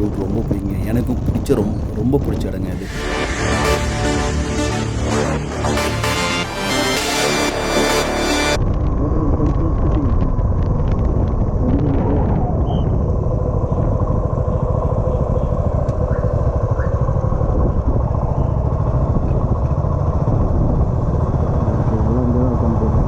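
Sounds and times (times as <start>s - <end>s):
road and wind noise: 8.6s - 23.0s
motorcycle engine running: 12.9s - 23.0s.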